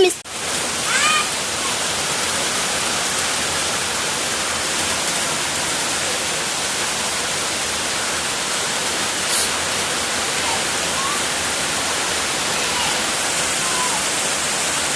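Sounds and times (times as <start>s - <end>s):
steady hiss: 6.7s - 14.9s.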